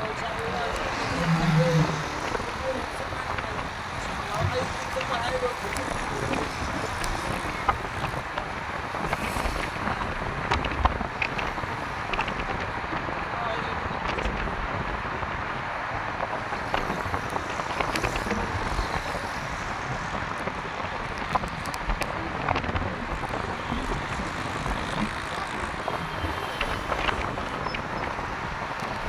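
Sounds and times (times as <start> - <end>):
traffic on wet street: 0.0 - 29.0
raindrop ticks: 0.1 - 13.0, 16.6 - 29.0.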